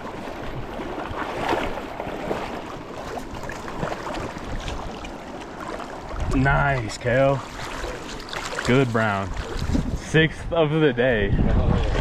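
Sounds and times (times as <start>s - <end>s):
small water splashes: 0.0s - 10.0s
creek water running: 0.0s - 12.0s.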